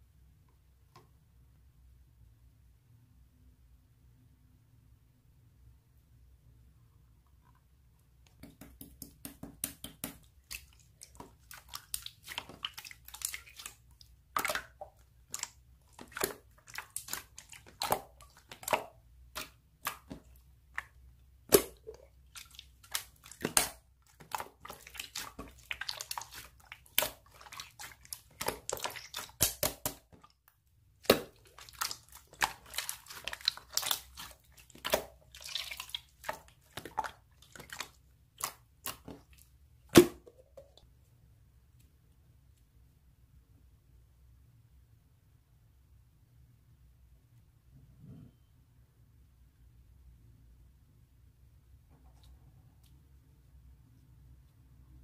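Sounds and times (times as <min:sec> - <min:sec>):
slime squished by hand: 0:08.5 - 0:30.4, 0:31.0 - 0:40.4.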